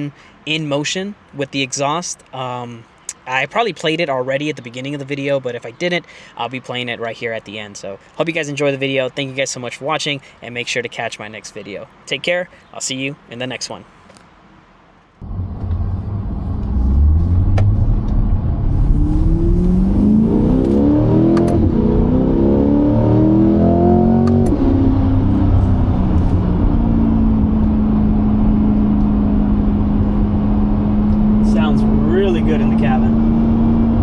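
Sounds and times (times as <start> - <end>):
car engine revving in cabin: 15.2 - 34.0.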